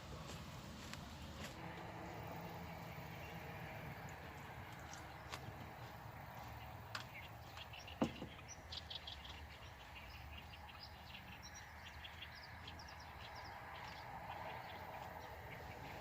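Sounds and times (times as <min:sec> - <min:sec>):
small birds chirping: 0:02.1 - 0:16.0.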